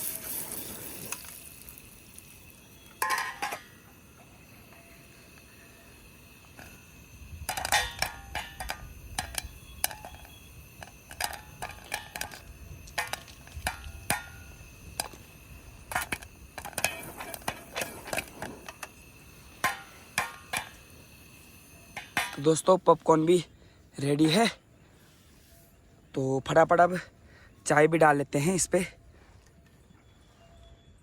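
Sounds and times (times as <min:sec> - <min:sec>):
pan and spoon clattering: 0:02.7 - 0:03.9, 0:07.4 - 0:21.0, 0:21.7 - 0:22.6.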